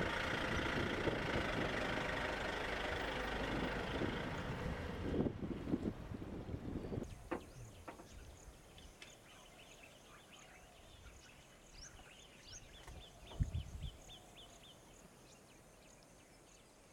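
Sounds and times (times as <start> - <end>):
faint birdsong: 5.6 - 16.9.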